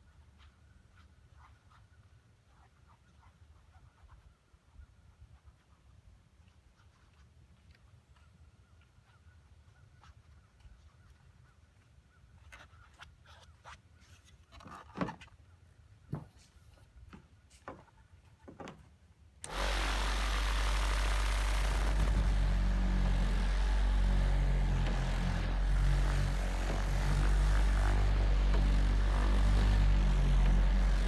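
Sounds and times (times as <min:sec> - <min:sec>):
car polisher humming: 0:19.4 - 0:31.0.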